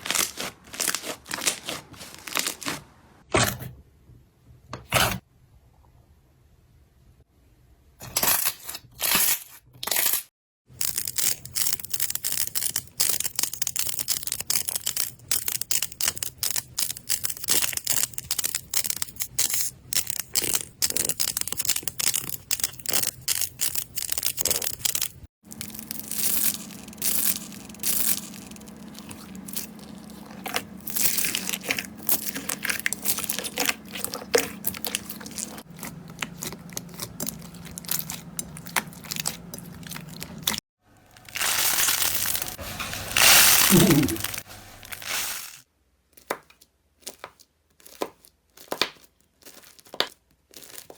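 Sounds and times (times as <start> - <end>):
slime crackling and popping: 10.8 - 40.6, 47.0 - 50.9.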